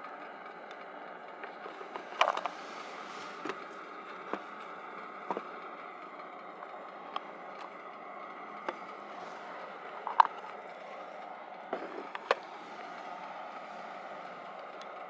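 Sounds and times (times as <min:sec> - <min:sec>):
camp gear clicks and knocks: 0:01.8 - 0:02.6, 0:05.3 - 0:05.5, 0:08.7 - 0:10.6.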